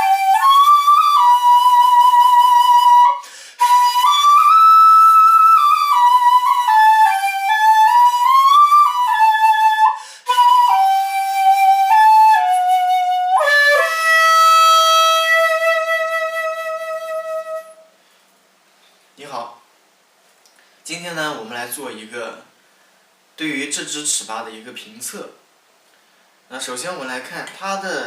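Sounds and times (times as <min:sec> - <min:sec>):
bone flute playing slow melody: 0:00.0 - 0:17.9.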